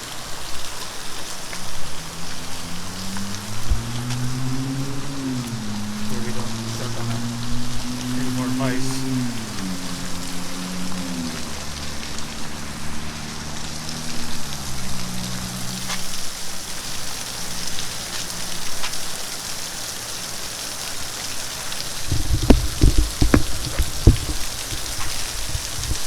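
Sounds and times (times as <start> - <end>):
steady hiss of spraying water: 0.0 - 26.0
low hum: 2.1 - 13.7
loud low thumps: 22.1 - 25.1
sharp knocks: 22.1 - 25.1.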